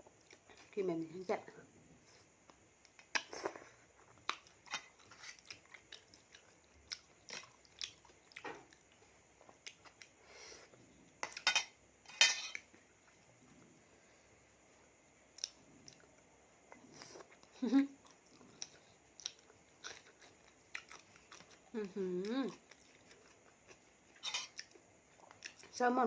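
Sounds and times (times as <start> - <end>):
person chewing food: 2.4 - 11.5, 14.8 - 25.7.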